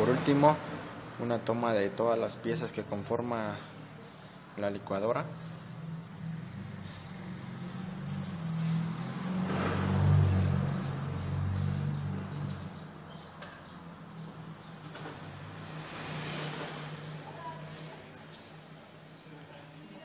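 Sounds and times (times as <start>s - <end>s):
bird chirping: 6.8s - 19.4s.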